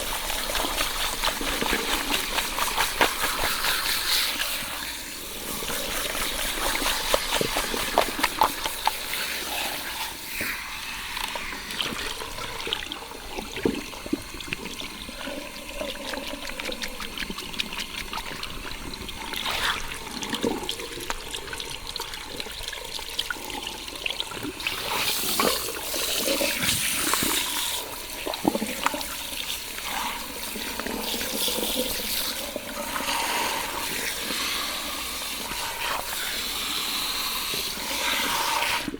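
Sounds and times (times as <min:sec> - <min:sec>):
shower water splashing on hair: 0:00.0 - 0:14.6.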